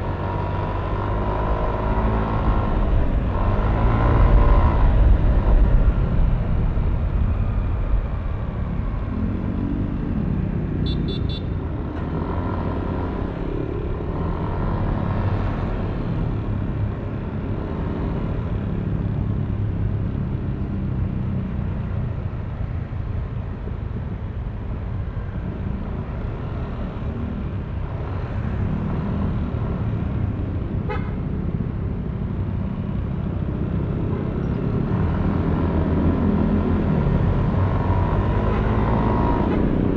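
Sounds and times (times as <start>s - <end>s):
short horn beeps: 10.9s - 11.6s.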